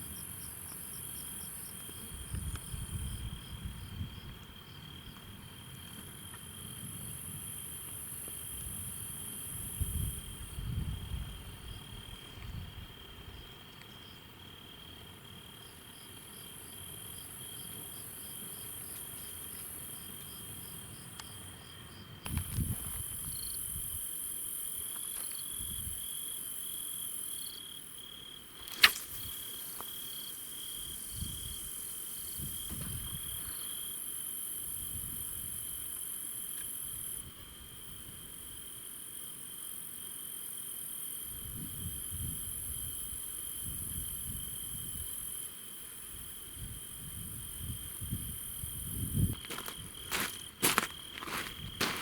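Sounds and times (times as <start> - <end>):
crickets trilling: 0.0 - 52.0
faint insect hiss: 0.0 - 52.0
sharp click: 28.6 - 29.3.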